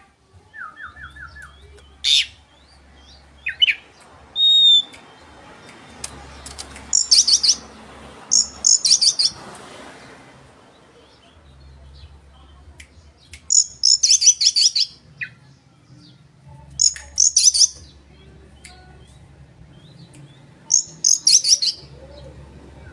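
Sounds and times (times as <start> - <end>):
songbird rapid high chirping: 0.8 - 7.7, 8.3 - 9.4, 13.1 - 15.4, 16.8 - 22.3.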